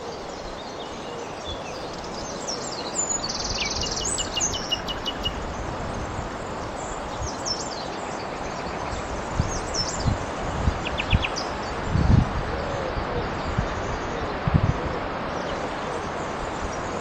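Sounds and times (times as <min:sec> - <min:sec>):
small birds chirping: 0:00.0 - 0:12.2
wind in trees: 0:00.0 - 0:17.0.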